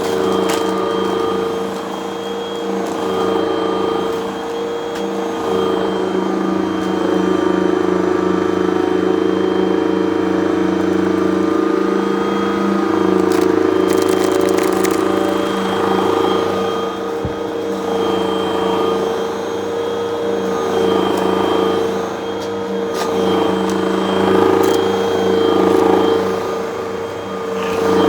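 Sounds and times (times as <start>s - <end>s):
vacuum cleaner motor humming: 0.0s - 28.0s
grit crackling in vacuum: 12.3s - 16.4s.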